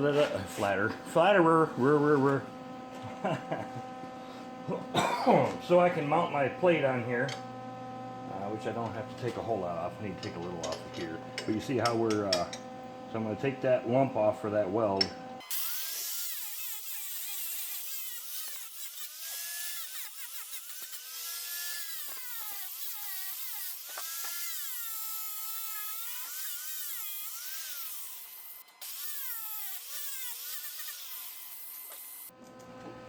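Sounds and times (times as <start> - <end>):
grinder grinding metal: 14.2 - 32.3.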